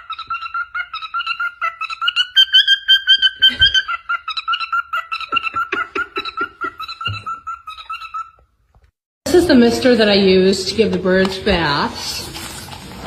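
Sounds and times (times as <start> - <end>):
pet birds chirping: 0.0 - 8.6.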